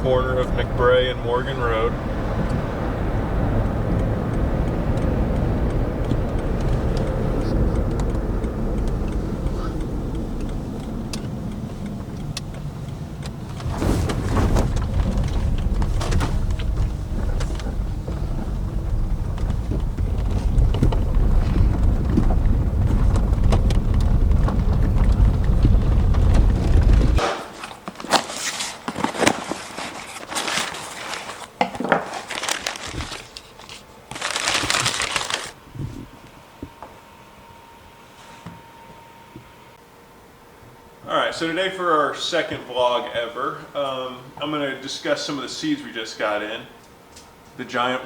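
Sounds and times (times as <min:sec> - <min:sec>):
steady low rumble: 0:00.0 - 0:27.2
crinkling and rustling handling noises: 0:13.2 - 0:35.6.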